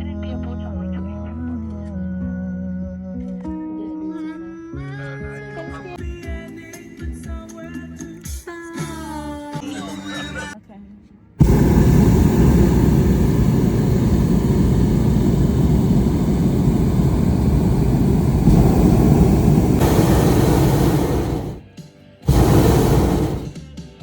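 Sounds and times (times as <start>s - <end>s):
propane burner roaring: 11.4s - 21.7s, 22.3s - 23.6s.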